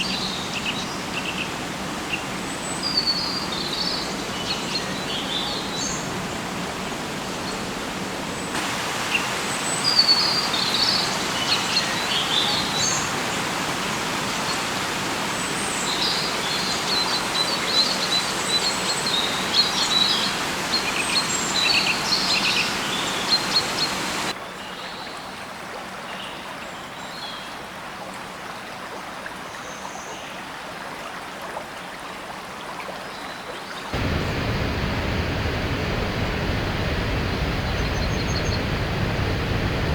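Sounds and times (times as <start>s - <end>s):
steady rushing noise: 8.6s - 15.7s, 34.0s - 39.9s.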